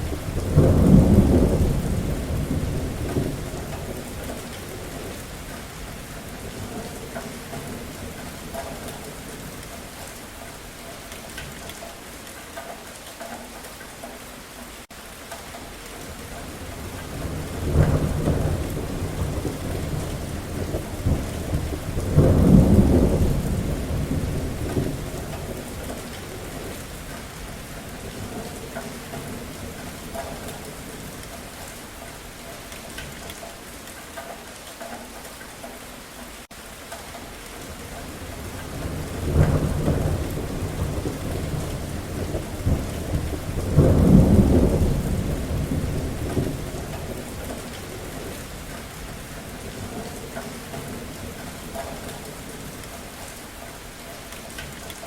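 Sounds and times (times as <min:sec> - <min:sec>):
thunder rumbling: 0:00.0 - 0:09.6, 0:16.1 - 0:31.6, 0:37.6 - 0:53.4
steady rain falling: 0:00.0 - 0:55.0.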